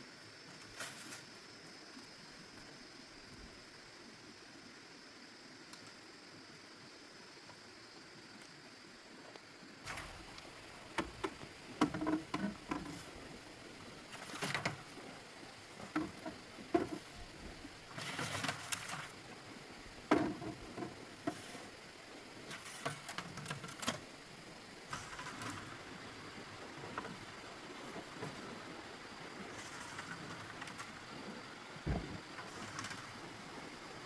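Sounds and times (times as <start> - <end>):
faint steady hiss: 0.0 - 34.0
rustling or scraping: 0.6 - 1.3, 15.7 - 19.2, 20.1 - 21.8
light knocks and clicks: 31.9 - 33.0.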